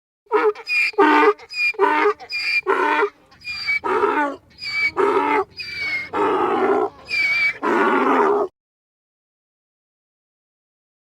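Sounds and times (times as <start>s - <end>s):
animal calling: 0.3s - 8.5s.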